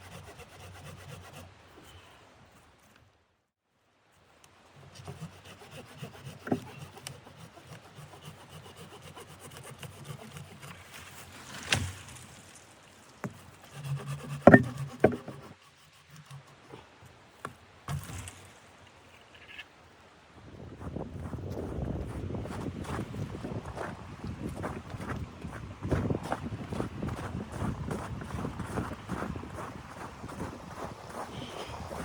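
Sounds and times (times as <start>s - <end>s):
scraping and rubbing on wood: 4.8s - 11.6s, 13.2s - 16.9s.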